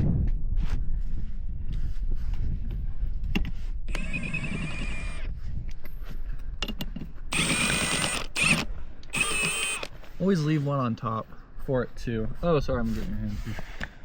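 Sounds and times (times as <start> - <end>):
impact wrench whining and rattling: 3.9 - 5.3, 6.6 - 10.1.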